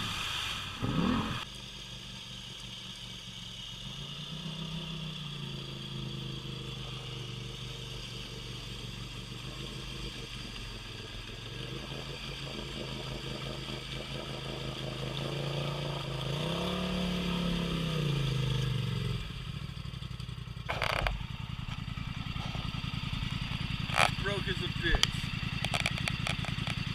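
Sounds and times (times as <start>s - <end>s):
atv engine revving: 0.0s - 26.9s.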